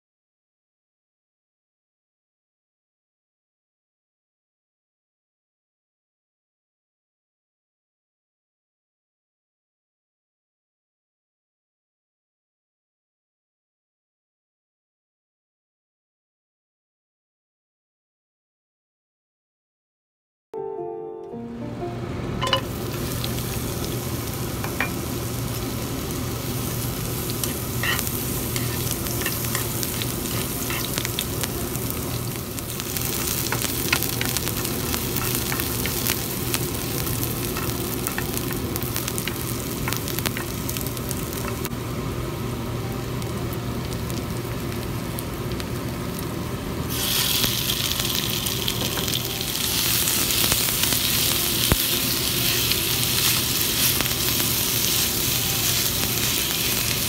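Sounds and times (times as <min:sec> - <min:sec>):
shallots sizzling in hot oil: 0:22.4 - 0:57.0.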